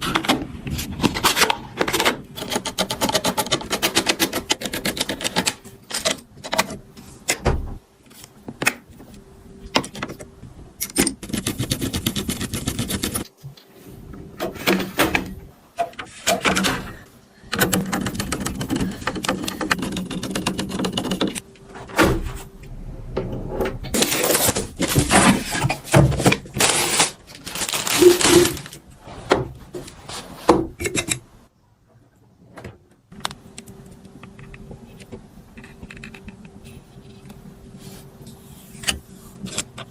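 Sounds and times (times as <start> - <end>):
rapid irregular clicking and clattering: 16.0 - 21.4.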